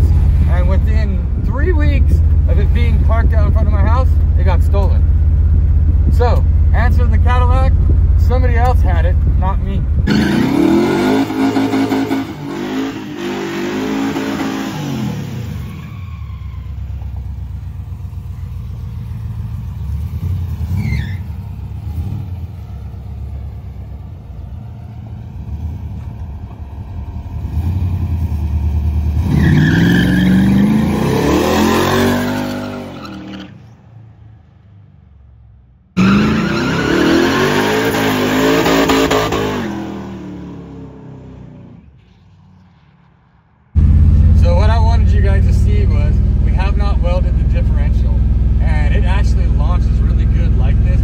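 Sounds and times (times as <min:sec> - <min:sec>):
car engine revving: 0:02.1 - 0:15.7, 0:25.3 - 0:33.5, 0:36.0 - 0:42.6, 0:43.7 - 0:51.0.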